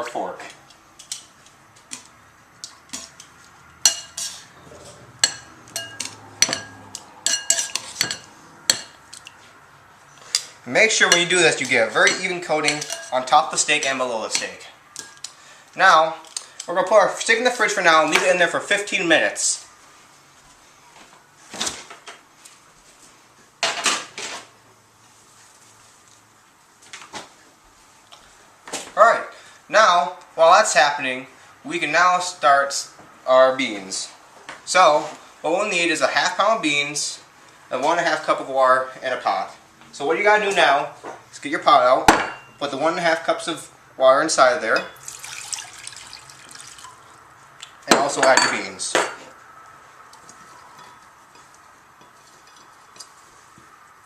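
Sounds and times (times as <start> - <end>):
metal utensil clinking against bowl: 5.2 - 9.3, 12.0 - 13.2
kitchen knocks and clunks: 42.1 - 42.5.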